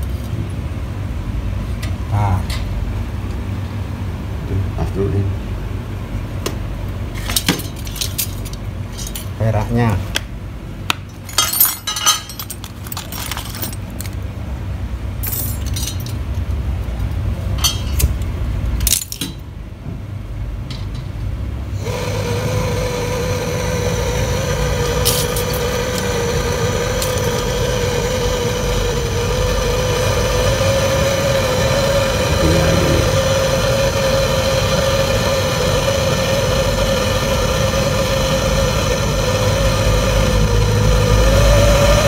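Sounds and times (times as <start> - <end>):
metal tools clinking: 7.6 - 9.3, 11.2 - 14.2, 15.2 - 16.2
machine hum with whine: 19.8 - 42.0.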